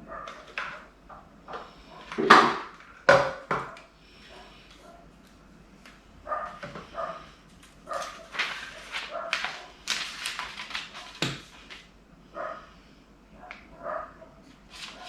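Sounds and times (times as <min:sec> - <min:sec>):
small dog barking and yipping: 0:00.0 - 0:00.4, 0:06.2 - 0:07.3, 0:07.9 - 0:09.8, 0:13.4 - 0:14.4.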